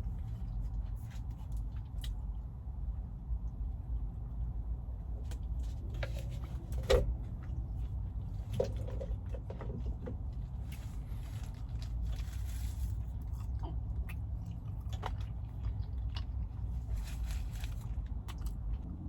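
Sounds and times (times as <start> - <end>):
steady low rumble: 0.0 - 19.0
eating noises: 12.0 - 19.0.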